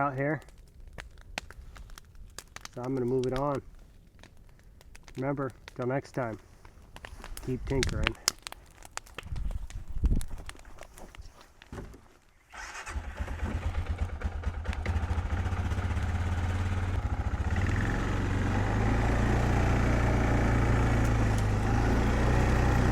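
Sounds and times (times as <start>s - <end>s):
engine starting and idling: 12.6s - 15.8s.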